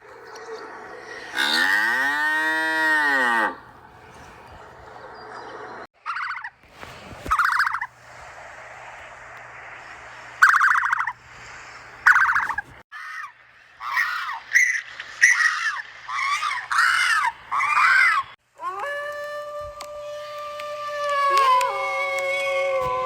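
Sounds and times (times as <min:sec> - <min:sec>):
rising and falling squawks: 0:00.0 - 0:06.6, 0:07.2 - 0:08.0, 0:09.7 - 0:23.0
rattling animal calls: 0:00.3 - 0:03.6, 0:12.0 - 0:18.4.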